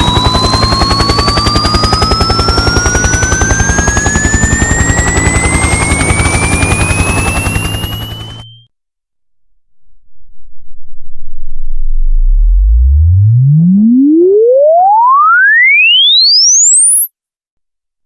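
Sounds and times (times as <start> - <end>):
helicopter rotor beating: 0.0 - 8.7
rising sine sweep tone: 0.0 - 8.7, 9.3 - 17.3.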